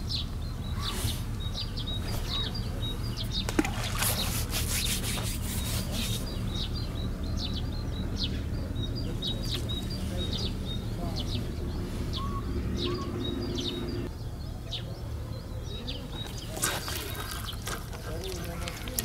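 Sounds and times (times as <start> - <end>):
small birds chirping: 0.0 - 19.0
steady low rumble: 5.5 - 15.8.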